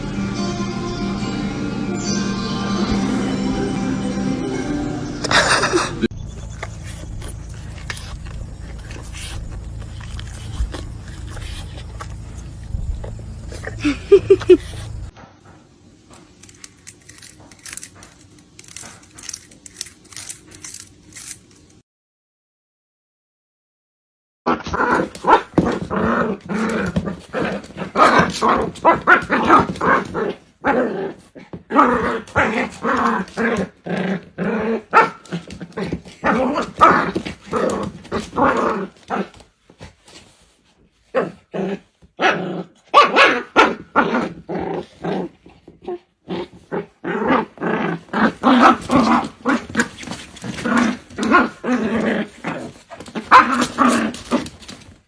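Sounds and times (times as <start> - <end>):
dog growling and barking: 24.5 - 40.2, 41.0 - 55.0.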